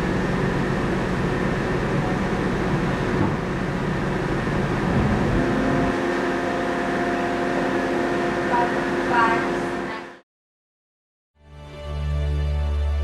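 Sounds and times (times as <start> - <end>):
boat engine running: 0.0 - 10.2.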